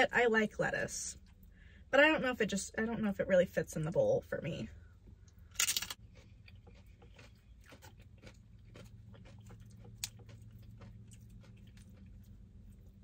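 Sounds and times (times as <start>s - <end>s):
low steady hum: 0.0s - 13.0s
person chewing food: 5.1s - 13.0s.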